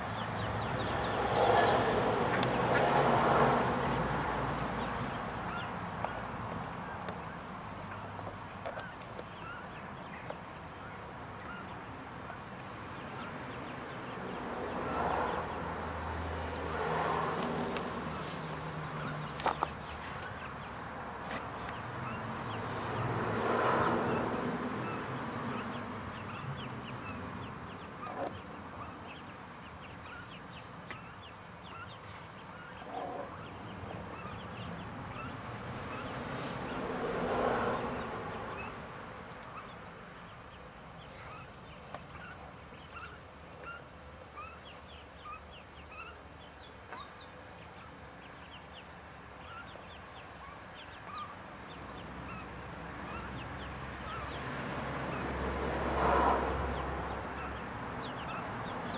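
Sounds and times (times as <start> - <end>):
ducklings peeping: 0.0 - 55.4, 56.6 - 58.9.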